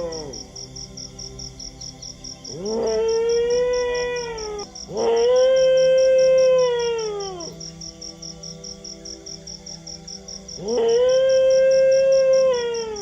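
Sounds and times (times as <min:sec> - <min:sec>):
dog howling: 0:00.0 - 0:00.4, 0:02.5 - 0:07.6, 0:10.6 - 0:13.0.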